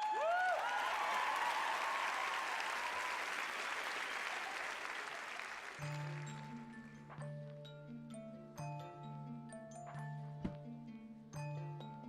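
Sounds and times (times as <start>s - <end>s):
whoops: 0.0s - 5.2s
audience applauding and cheering: 0.0s - 6.8s.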